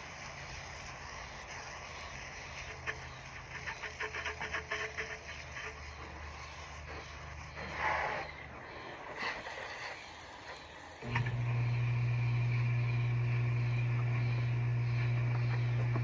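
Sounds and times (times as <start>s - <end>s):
motor humming: 11.0s - 16.0s.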